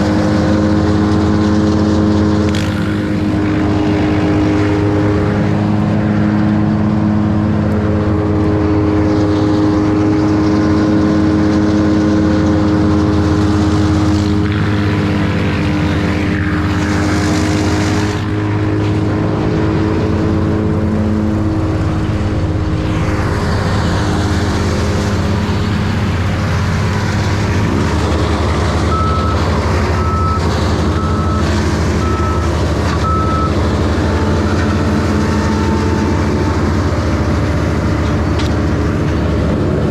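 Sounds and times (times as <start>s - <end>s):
harsh rushing noise: 0.0s - 7.1s, 12.5s - 39.9s
large machinery engine running: 0.0s - 39.9s
even beeping: 25.2s - 38.8s.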